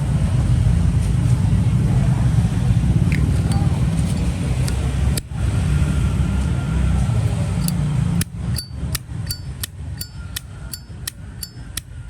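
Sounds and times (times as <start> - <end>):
lighter lid clicking open and shut: 7.6 - 11.9.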